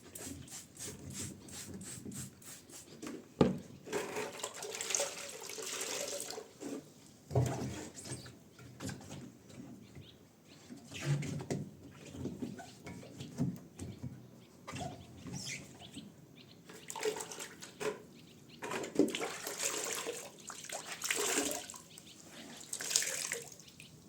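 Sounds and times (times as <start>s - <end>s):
water running and splashing: 22.6s - 23.6s.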